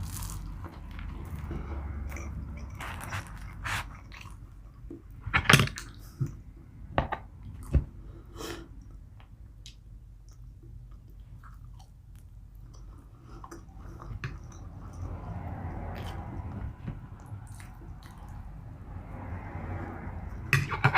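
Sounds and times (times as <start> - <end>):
person chewing food: 0.0 - 5.0, 9.6 - 18.6.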